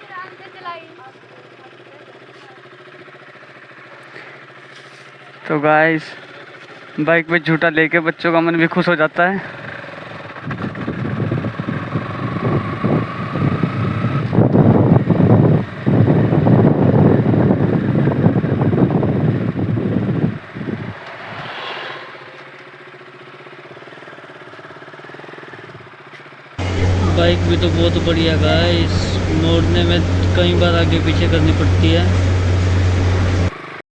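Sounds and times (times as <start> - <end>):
motorcycle engine running: 0.0 - 21.0, 22.1 - 33.8
wind rushing over microphone: 10.4 - 22.4, 26.6 - 33.5.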